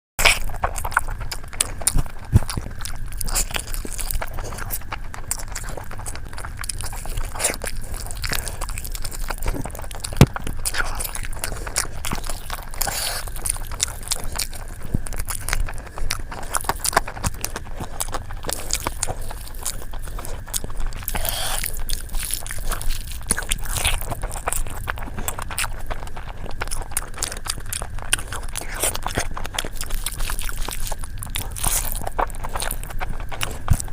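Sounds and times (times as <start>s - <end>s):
crunchy biting and chewing: 0.2s - 33.9s.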